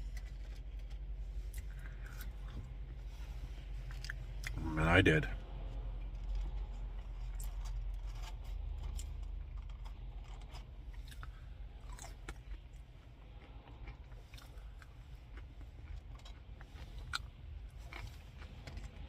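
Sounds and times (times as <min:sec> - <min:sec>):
mouth clicks and crunches: 0:00.1 - 0:03.0, 0:06.2 - 0:19.0
person chewing food: 0:00.1 - 0:04.6, 0:05.7 - 0:19.0.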